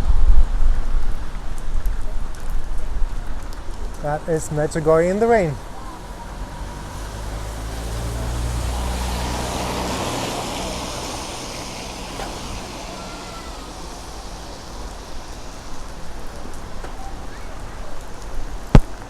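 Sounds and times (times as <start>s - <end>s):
rain falling: 0.0s - 19.0s
tyre hiss on wet road: 0.6s - 19.0s
car passing: 3.6s - 17.7s.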